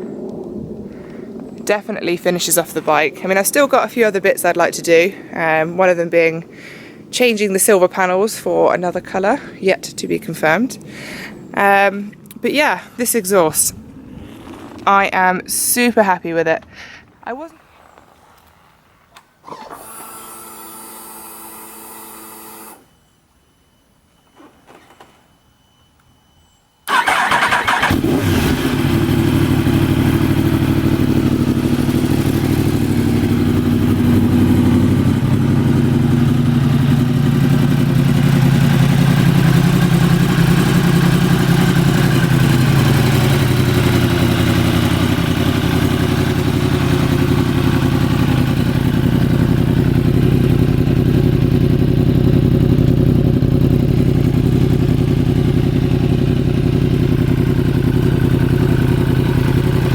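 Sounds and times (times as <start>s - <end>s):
motorcycle engine starting and idling: 19.1s - 22.9s, 26.8s - 59.9s.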